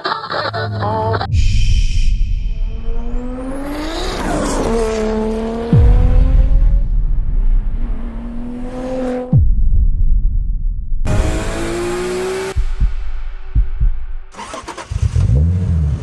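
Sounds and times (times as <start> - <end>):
deep booms sweeping down: 1.3 - 4.1, 5.7 - 8.6, 9.3 - 11.2
car engine revving past: 3.0 - 6.8, 7.7 - 9.4.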